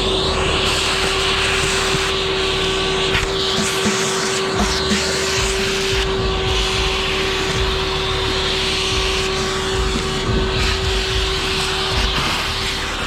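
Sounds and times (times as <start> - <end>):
motor running with whine: 0.0 - 13.0.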